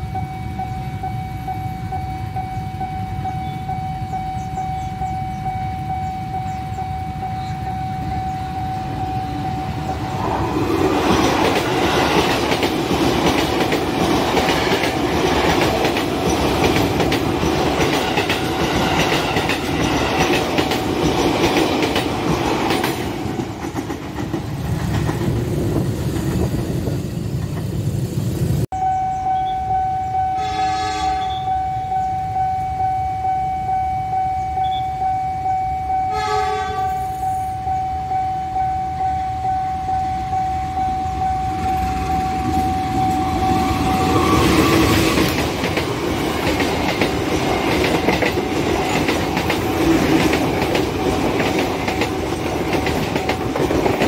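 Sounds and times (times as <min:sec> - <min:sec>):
crossing warning alarm pulsing: 0:00.0 - 0:24.4, 0:28.7 - 0:54.0
train wheels clacking: 0:06.5 - 0:27.9, 0:41.5 - 0:54.0
train horn blasts: 0:28.8 - 0:45.2.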